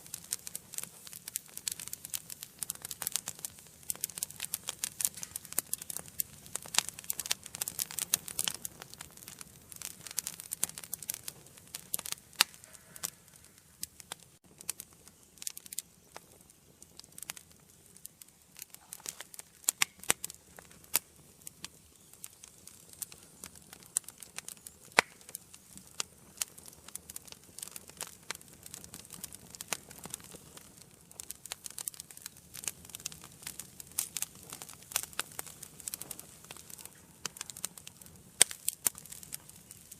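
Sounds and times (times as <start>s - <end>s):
soft steady hiss: 0.0s - 39.9s
wood fire crackling: 0.0s - 39.9s.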